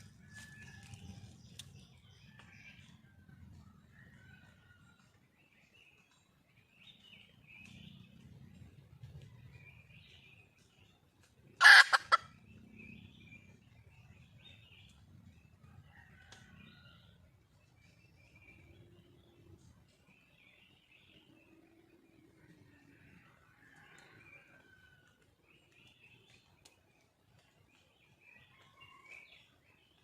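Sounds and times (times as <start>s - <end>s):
junglefowl call: 11.6s - 12.2s
small birds chirping: 17.7s - 30.0s.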